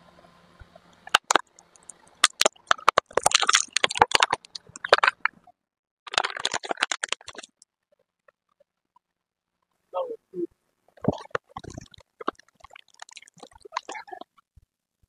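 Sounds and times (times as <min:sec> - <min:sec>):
plastic cracking under car tyre: 0:01.0 - 0:05.4, 0:06.1 - 0:07.6.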